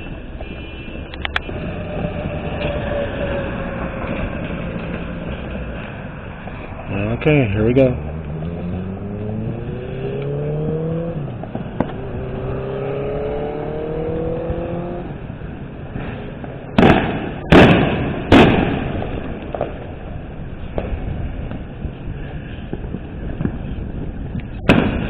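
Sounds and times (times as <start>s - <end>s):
car engine accelerating: 1.2s - 15.9s
loud firework bangs: 11.2s - 12.5s, 15.2s - 21.9s, 22.6s - 25.0s.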